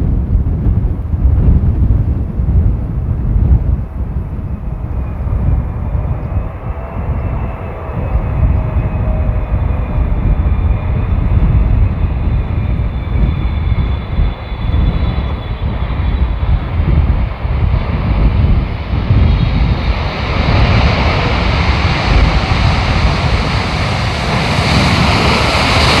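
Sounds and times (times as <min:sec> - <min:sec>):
jet airliner engine whine: 0:00.0 - 0:26.0
wind buffeting microphone: 0:00.0 - 0:26.0.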